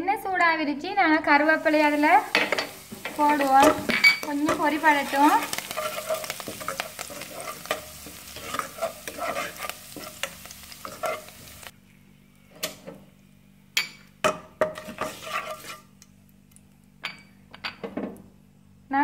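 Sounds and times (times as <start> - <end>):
leaves sizzling in hot oil: 1.3 - 11.8, 14.6 - 16.0
metal spoon scraping pan: 1.7 - 11.6, 14.6 - 15.9.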